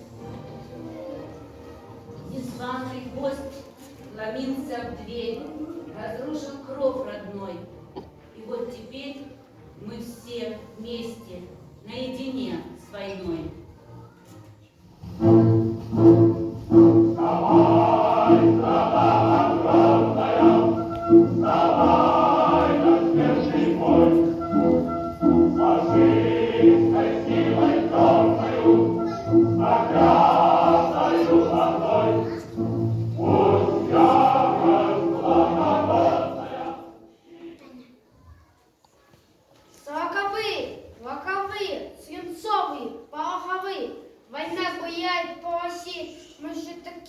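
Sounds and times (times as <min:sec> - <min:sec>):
low musical accompaniment: 0:00.0 - 0:37.6
choir singing: 0:15.2 - 0:37.8.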